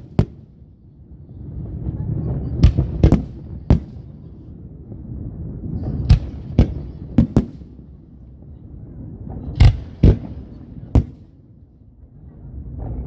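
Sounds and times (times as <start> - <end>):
fireworks bangs: 0.0 - 0.7, 1.6 - 4.6, 5.4 - 8.3, 9.2 - 11.5
low rumbling: 0.0 - 13.0.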